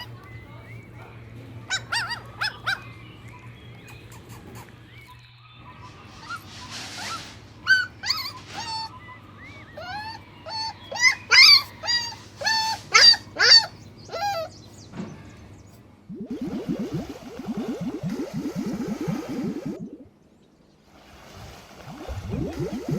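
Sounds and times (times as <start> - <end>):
puppy yelping: 1.7 - 2.9, 6.2 - 14.5.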